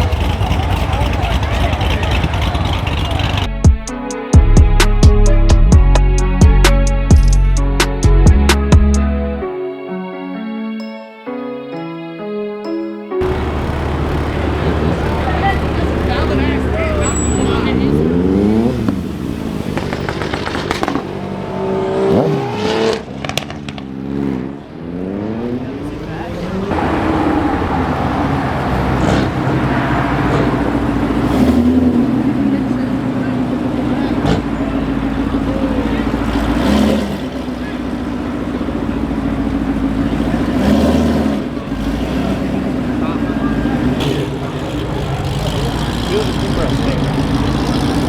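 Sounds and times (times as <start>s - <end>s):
car engine revving: 0.0s - 3.7s, 13.2s - 48.0s
other engines running: 0.0s - 3.9s, 13.2s - 48.0s
sharp exhaust pops: 19.7s - 21.2s.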